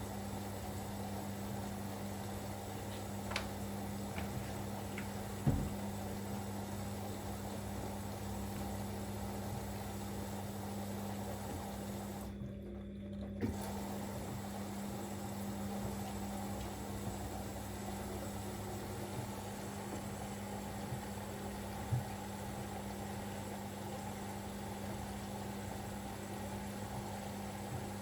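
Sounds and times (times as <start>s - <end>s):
washing machine hum: 0.0s - 28.0s
water running into washing machine: 0.0s - 28.0s
washing machine thump: 5.4s - 6.0s.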